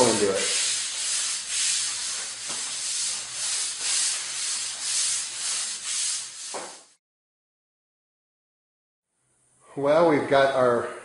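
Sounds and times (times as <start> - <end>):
brush scrubbing concrete: 0.0 - 6.9.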